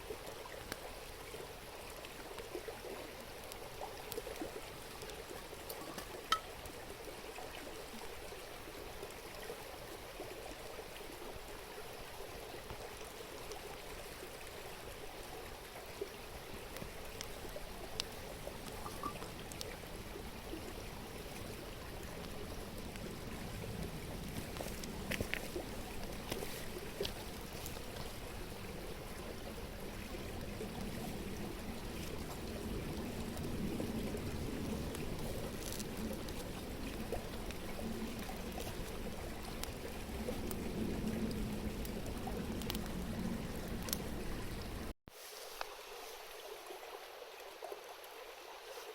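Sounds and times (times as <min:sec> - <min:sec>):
river babbling: 0:00.0 - 0:48.9
campfire wood popping: 0:03.5 - 0:06.9, 0:16.7 - 0:19.9, 0:21.4 - 0:28.6, 0:30.1 - 0:44.8.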